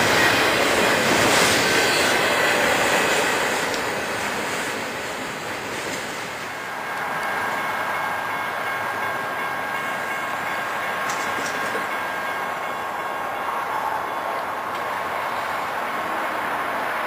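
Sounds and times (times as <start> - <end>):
train wheels on rails: 0.0 - 17.0
steady high tones: 6.5 - 16.1.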